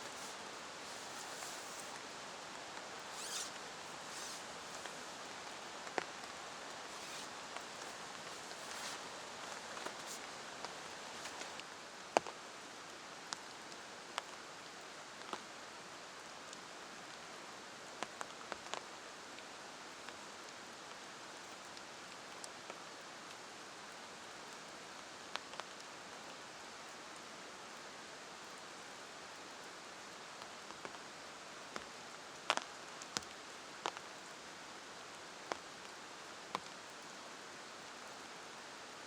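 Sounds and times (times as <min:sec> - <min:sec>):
brief rustles: 0:00.0 - 0:11.6
steady rain hiss: 0:00.0 - 0:39.0.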